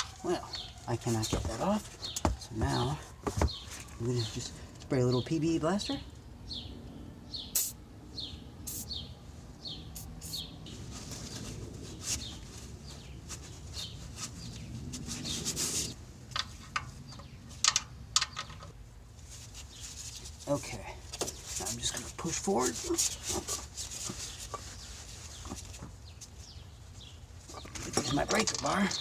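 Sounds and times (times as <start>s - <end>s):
small bird chirping: 6.5s - 11.5s, 22.6s - 29.0s
short hissing bursts: 7.5s - 7.8s, 8.6s - 9.0s, 10.0s - 10.4s.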